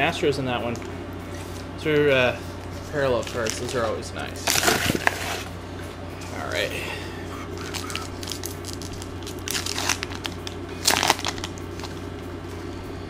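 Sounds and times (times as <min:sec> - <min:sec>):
low steady hum: 0:00.0 - 0:13.0
wrapper tearing and crinkling: 0:03.2 - 0:05.5, 0:07.6 - 0:12.0.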